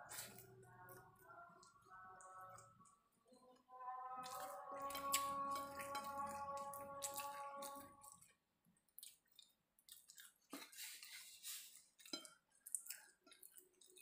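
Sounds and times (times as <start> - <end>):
person chewing with wet mouth clicks: 4.2 - 10.7, 12.0 - 14.0.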